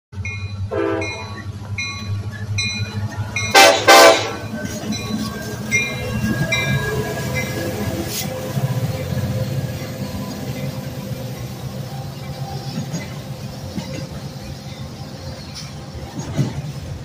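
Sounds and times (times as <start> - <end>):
diesel locomotive engines rumbling: 0.1 - 17.0
locomotive bell ringing: 0.2 - 16.4
locomotive horn blasts: 0.7 - 1.4, 3.5 - 4.5.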